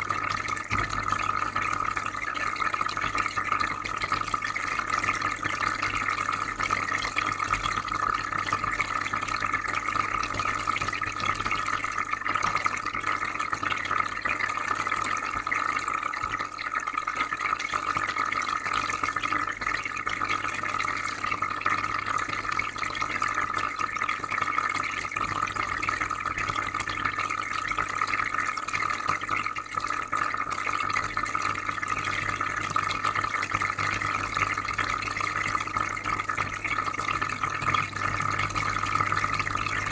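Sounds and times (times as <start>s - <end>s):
water trickling and bubbling: 0.0s - 39.9s
low filter hum: 34.1s - 39.9s.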